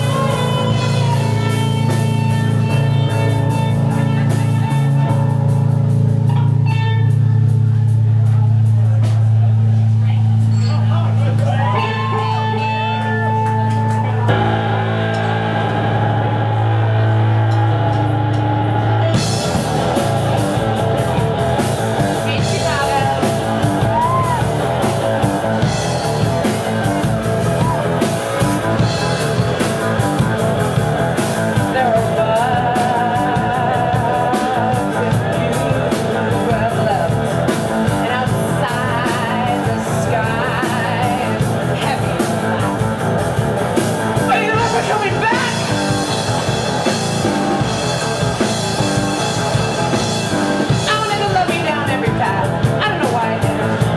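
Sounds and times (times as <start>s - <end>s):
drums: 0.0s - 53.9s
live rock band playing: 0.0s - 53.9s
person singing: 31.5s - 42.8s.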